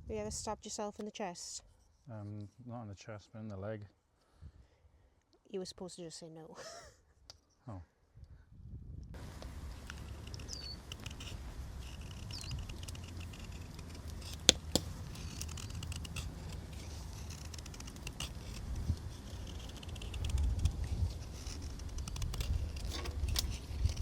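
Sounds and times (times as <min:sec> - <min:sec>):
low steady rumble: 0:08.7 - 0:24.0
sharp wood snaps: 0:09.3 - 0:24.0
knife scraping wood: 0:09.4 - 0:24.0
bird chirping: 0:09.7 - 0:13.6.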